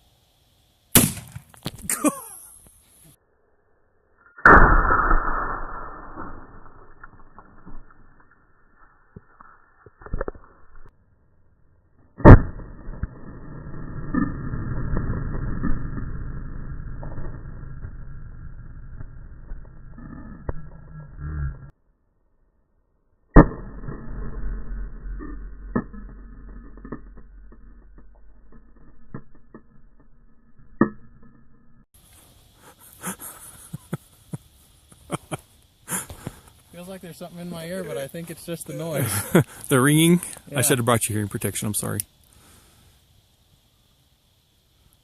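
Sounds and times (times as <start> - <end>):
shotgun blast: 0.9 - 1.6, 4.5 - 6.4
low rumble: 11.5 - 21.7
rough rumbling noise: 12.1 - 21.7, 23.4 - 32.6.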